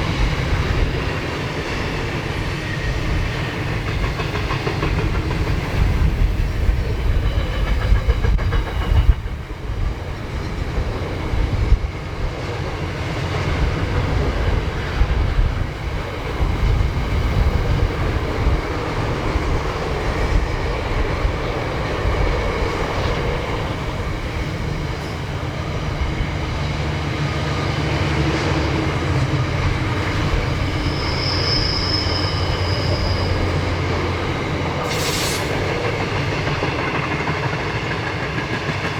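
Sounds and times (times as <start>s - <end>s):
train wheels clattering: 0.0s - 38.9s
high-pitched wheel squeal: 30.2s - 34.0s.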